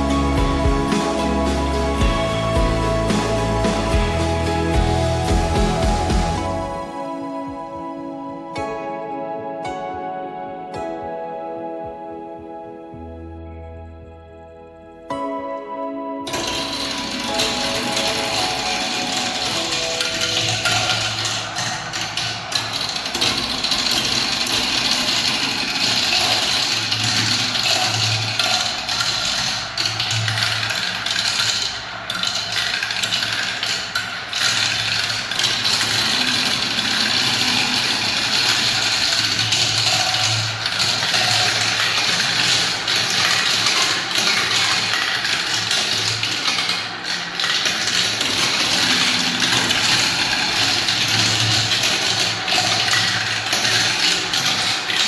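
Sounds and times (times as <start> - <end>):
low hum: 0.0 - 9.4
marbles rolling down a track: 16.3 - 55.0.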